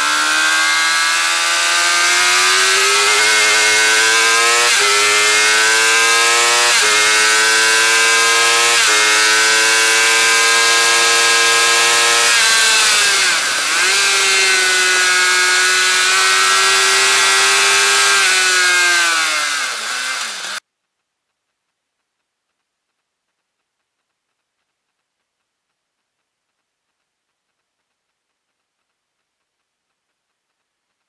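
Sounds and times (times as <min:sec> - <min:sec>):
motorcycle engine revving: 0:00.0 - 0:20.6.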